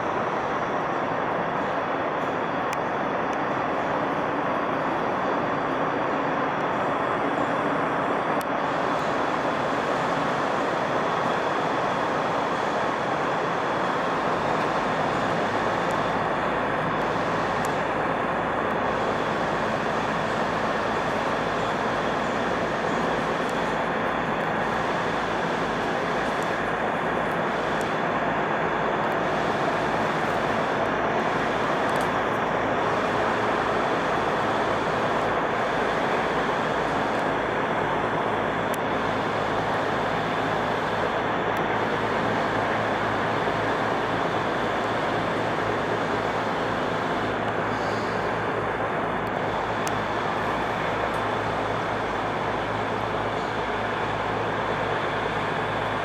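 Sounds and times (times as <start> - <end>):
road traffic rumble: 28.8 - 56.0.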